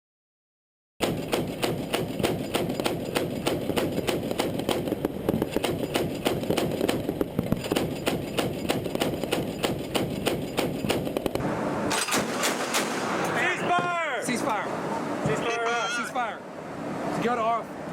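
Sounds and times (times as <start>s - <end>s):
automatic gunfire: 11.9s - 13.2s.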